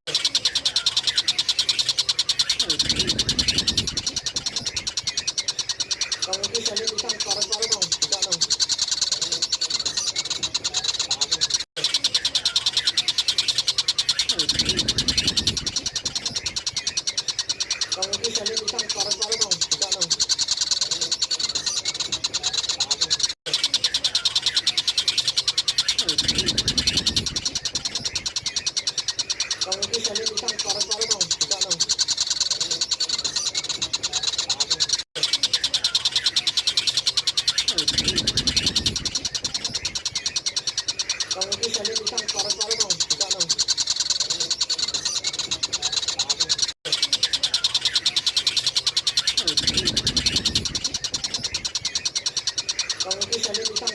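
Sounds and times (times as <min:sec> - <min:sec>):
kingfisher chattering: 0:00.1 - 0:53.9.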